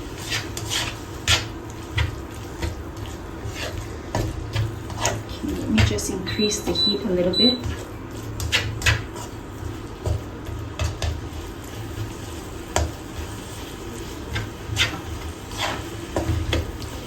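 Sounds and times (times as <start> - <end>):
low steady sizzle: 0.0 - 17.0
spoon scraping cooking pot: 0.2 - 6.8, 14.3 - 16.7.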